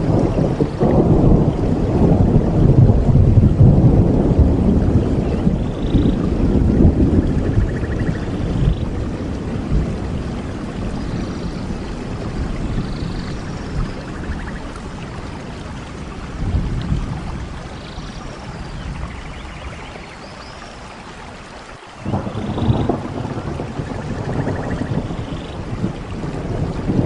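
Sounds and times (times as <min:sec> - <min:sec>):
steady rain: 0:00.0 - 0:27.0.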